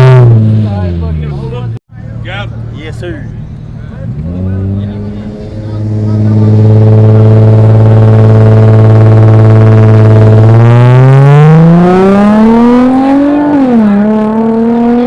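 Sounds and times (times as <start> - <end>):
car engine revving: 0.0 - 1.8, 3.2 - 15.0.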